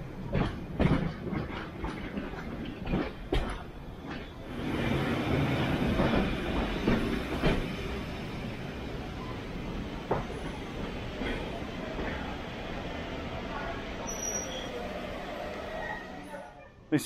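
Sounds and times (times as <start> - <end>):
train carriage rumbling on track: 0.0 - 17.0
wheels clicking over rail joints: 0.2 - 4.4.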